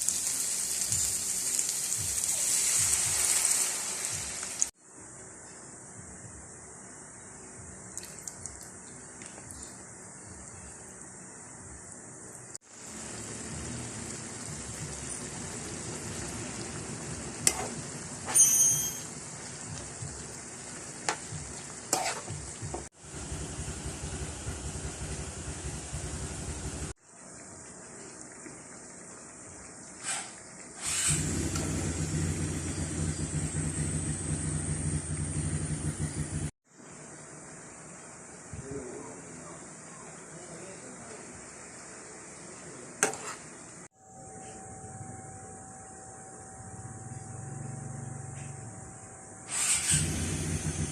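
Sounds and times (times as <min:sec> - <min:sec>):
food sizzling in a hot pan: 0:00.0 - 0:04.8, 0:12.6 - 0:22.9
faint sizzling hiss: 0:00.0 - 0:18.4, 0:36.7 - 0:44.7
scrape with ringing tone: 0:18.3 - 0:19.0, 0:44.0 - 0:50.1
sharp clink: 0:18.3 - 0:19.0
low mechanical hum: 0:31.1 - 0:39.2.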